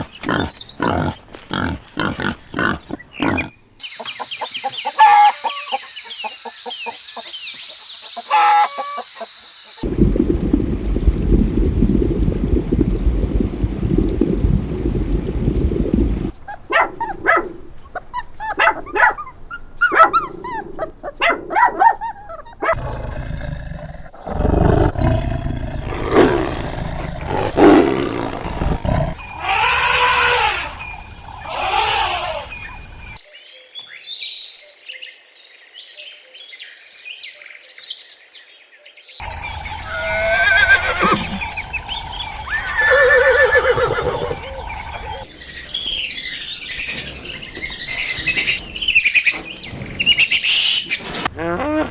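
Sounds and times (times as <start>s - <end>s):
high animal calls: 4.9s - 5.8s, 24.3s - 32.9s, 39.2s - 45.3s
animal roars and growls: 22.7s - 32.7s
wavering animal calls: 25.8s - 32.9s, 39.2s - 45.3s.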